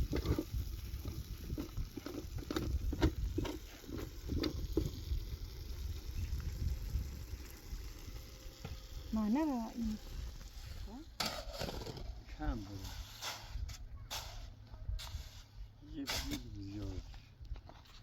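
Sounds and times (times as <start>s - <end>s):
knocks and scrapes: 0.0s - 5.0s, 10.4s - 18.0s
low steady rumble: 0.0s - 13.8s.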